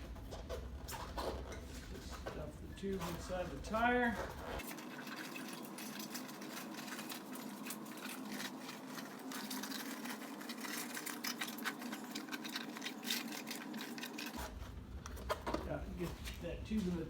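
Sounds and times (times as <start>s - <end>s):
rubber rubbing and scuffing: 0.0s - 4.7s.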